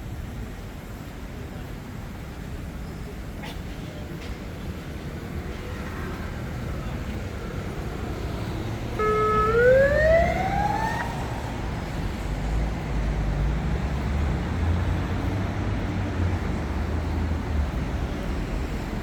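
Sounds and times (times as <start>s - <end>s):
city traffic rumble: 0.0s - 19.0s
high whine rising in pitch: 9.0s - 12.3s.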